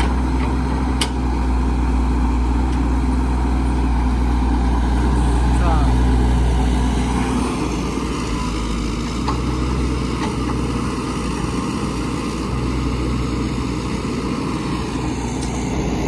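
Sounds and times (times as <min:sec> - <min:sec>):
heavy machinery diesel engine rumble: 0:00.0 - 0:16.0.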